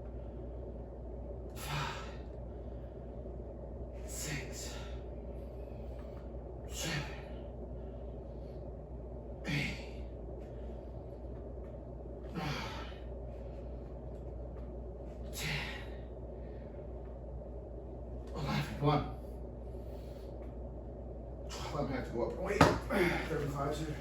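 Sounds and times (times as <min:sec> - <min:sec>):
man exhaling forcefully: 0:01.6 - 0:02.2, 0:06.7 - 0:07.3, 0:12.3 - 0:13.0, 0:15.3 - 0:16.0.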